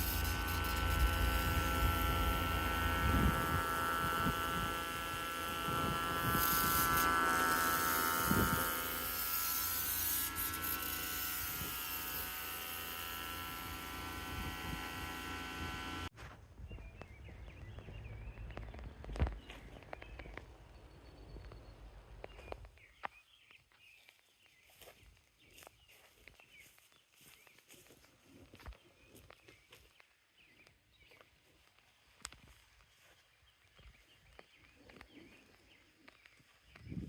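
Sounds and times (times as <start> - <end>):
water spray hiss: 0.0 - 2.1
pressure washer running: 0.0 - 16.1
birds chirping: 16.7 - 31.8, 32.4 - 37.0.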